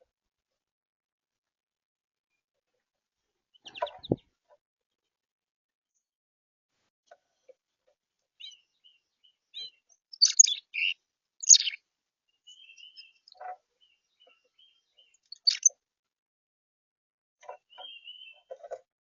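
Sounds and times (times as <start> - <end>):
small birds chirping: 3.5 - 4.2, 8.4 - 15.7, 17.4 - 18.7.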